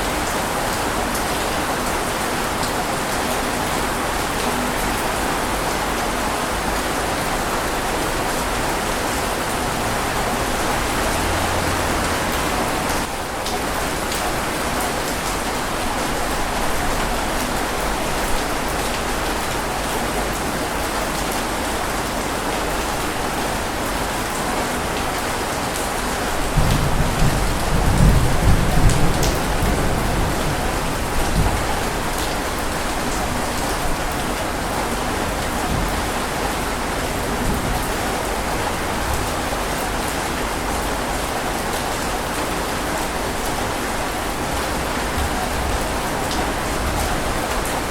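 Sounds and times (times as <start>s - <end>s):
heavy rain falling: 0.0s - 47.9s
thunder rumbling: 26.2s - 34.2s.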